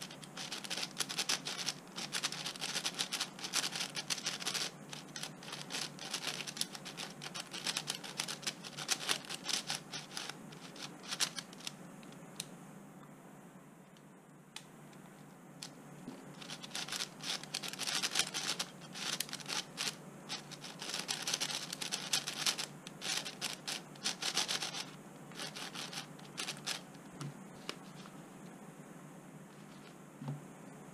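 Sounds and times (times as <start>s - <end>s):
puzzle cube clicking as turned: 0.0s - 12.5s, 16.4s - 26.8s.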